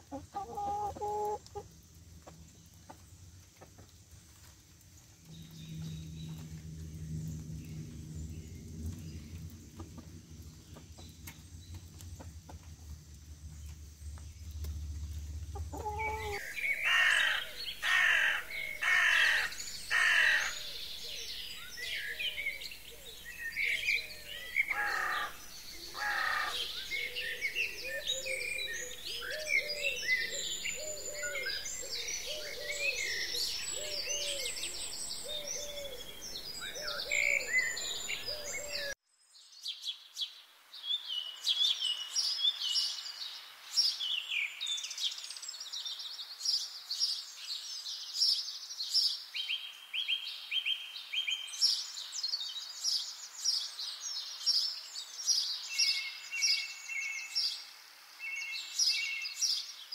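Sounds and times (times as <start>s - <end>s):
birds chirping and trilling: 5.2s - 59.9s
loud bird calls: 15.3s - 39.0s.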